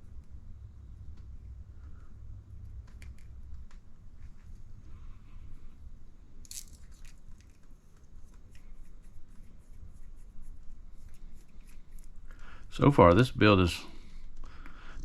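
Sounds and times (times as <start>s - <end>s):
low room rumble: 0.0s - 15.0s
small plastic parts clicking: 2.6s - 3.8s, 6.4s - 8.7s.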